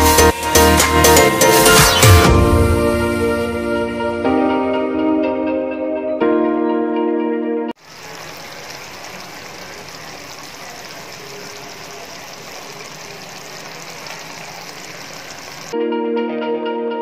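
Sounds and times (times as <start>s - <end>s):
food sizzling in a pan: 7.8s - 15.8s.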